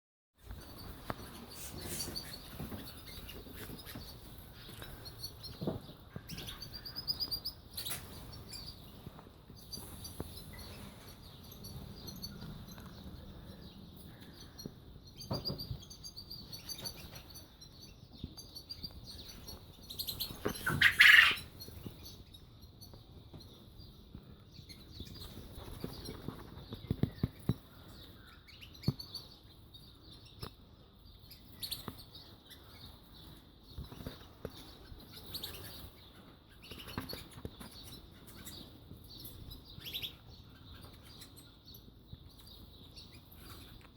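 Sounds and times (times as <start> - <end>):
canaries twittering: 0.4 - 43.9.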